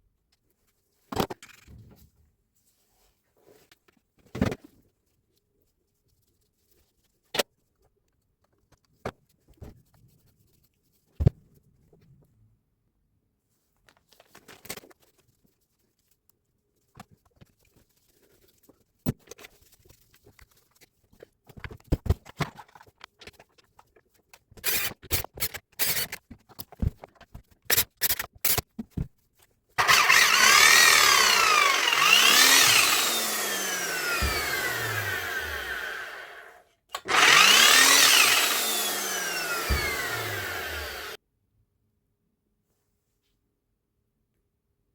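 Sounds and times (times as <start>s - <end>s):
rotary hammer motor running: 29.8s - 41.2s.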